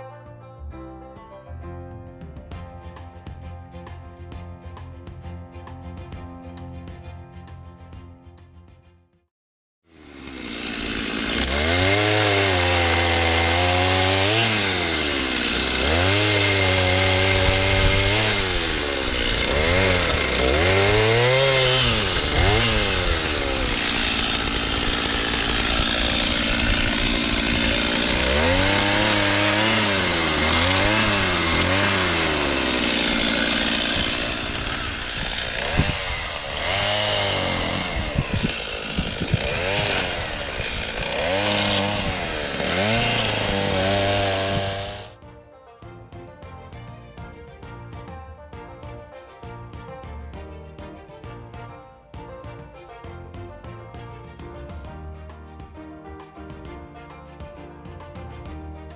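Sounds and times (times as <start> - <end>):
chainsaw engine revving: 9.9 - 45.2.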